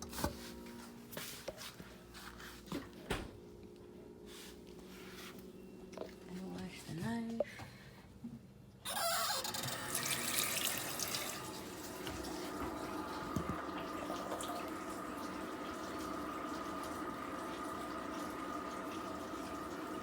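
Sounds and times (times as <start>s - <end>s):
tap running into a sink: 9.5s - 19.8s.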